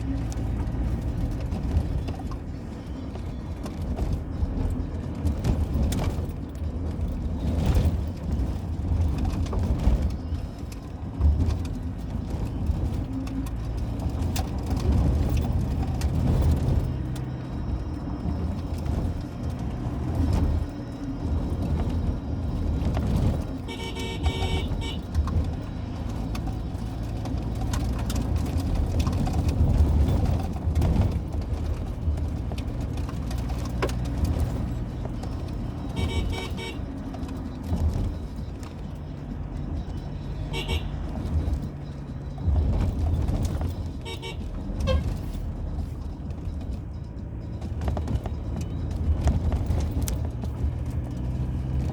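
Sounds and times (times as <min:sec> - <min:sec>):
car engine and tyres rumbling: 0:00.0 - 0:51.9
vehicle horn honking: 0:23.6 - 0:25.1, 0:35.9 - 0:36.9, 0:40.4 - 0:41.2, 0:44.0 - 0:45.3.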